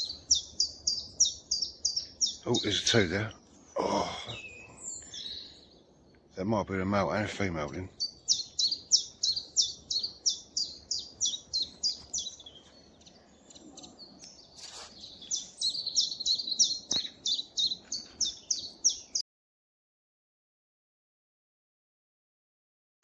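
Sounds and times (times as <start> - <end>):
chiffchaff singing: 6.0 - 19.2.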